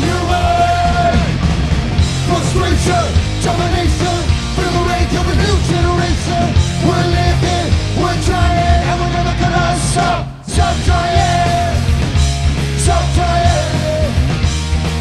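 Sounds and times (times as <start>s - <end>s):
punk rock band playing live: 0.0s - 15.0s.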